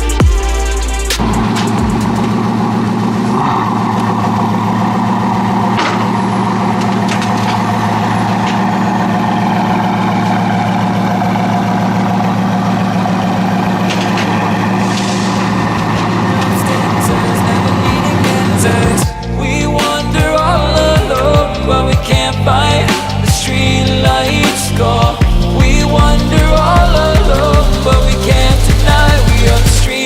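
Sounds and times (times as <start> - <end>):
road and tyre drone: 0.0 - 30.0.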